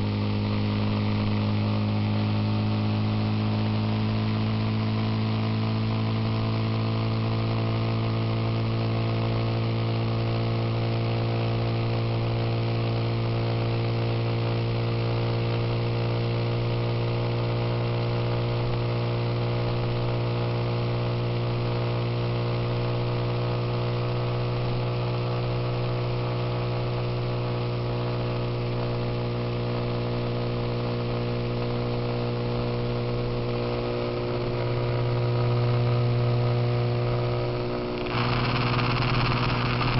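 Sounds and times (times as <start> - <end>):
motorcycle engine cruising: 37.1 - 39.9
wind and road noise: 38.0 - 39.9.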